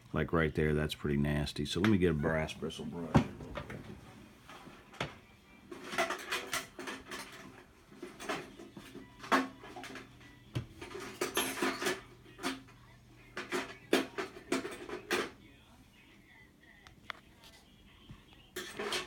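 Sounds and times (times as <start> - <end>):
metal tools clinking and clattering: 5.7 - 10.2, 10.8 - 12.8, 13.4 - 15.4, 18.6 - 19.0.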